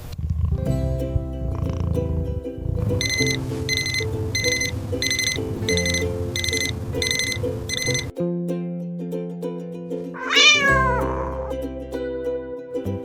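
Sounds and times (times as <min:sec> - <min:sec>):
light background music: 0:00.6 - 0:08.7
alarm clock beeping: 0:03.0 - 0:08.1.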